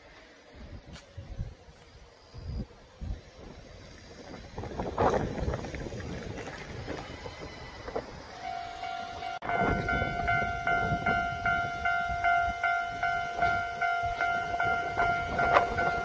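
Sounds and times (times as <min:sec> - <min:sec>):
train rumble: 0:00.0 - 0:16.0
pulsing ringing tone: 0:07.4 - 0:16.0.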